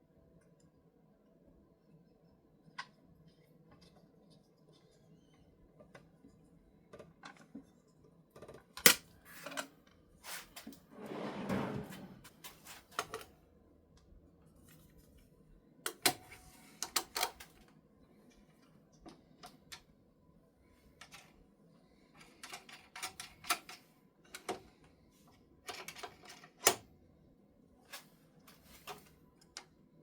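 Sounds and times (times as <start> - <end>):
short scraping: 10.9 - 12.2.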